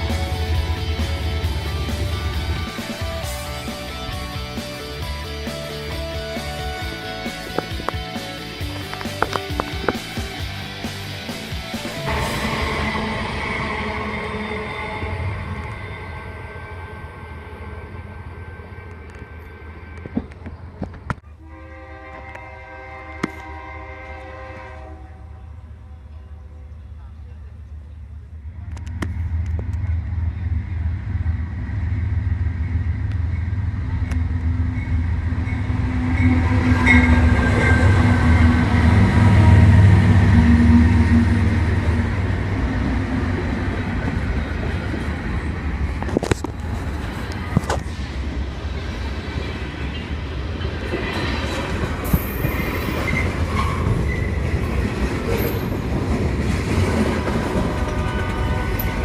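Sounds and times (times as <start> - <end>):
locomotive rumble: 0.0 - 59.0
high wheel squeal: 32.6 - 41.5, 50.9 - 55.9
train wheel clatter: 32.6 - 59.0.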